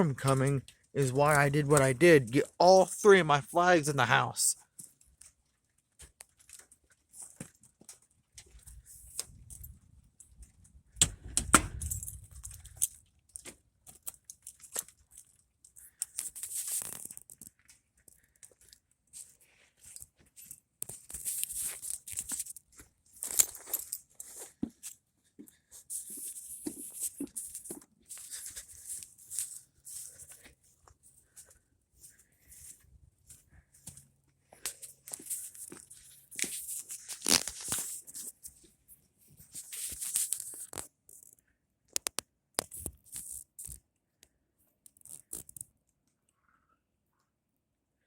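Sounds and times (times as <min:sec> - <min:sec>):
rustling and crinkling: 0:04.6 - 0:43.9, 0:44.8 - 0:45.8
small clicks and knocks: 0:39.8 - 0:46.2.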